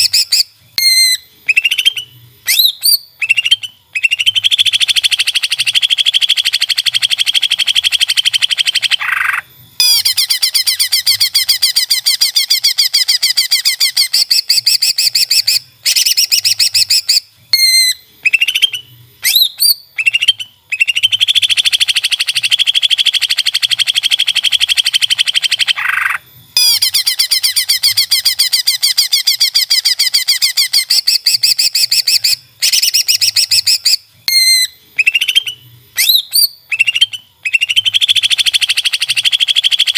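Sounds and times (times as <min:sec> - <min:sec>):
bird trilling and whistling: 0:00.0 - 0:39.9.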